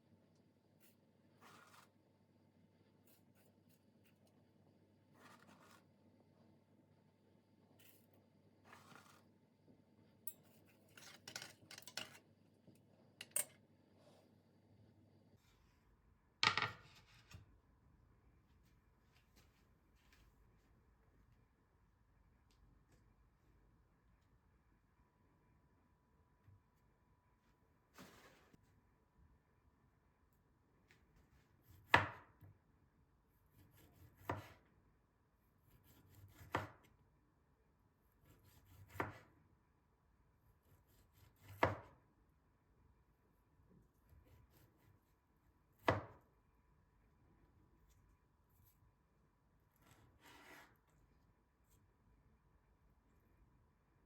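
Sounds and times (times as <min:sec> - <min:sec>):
knife chopping on cutting board: 0:31.7 - 0:32.4, 0:33.5 - 0:34.6, 0:35.8 - 0:36.9, 0:38.2 - 0:39.3, 0:40.9 - 0:42.0, 0:45.8 - 0:46.2.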